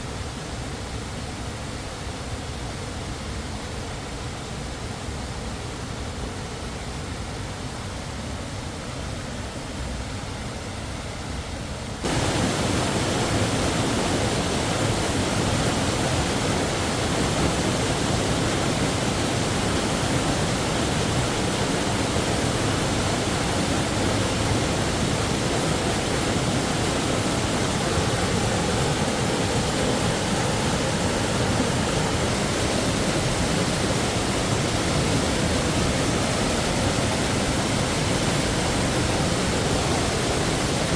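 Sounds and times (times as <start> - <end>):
waterfall rushing: 12.0 - 40.9.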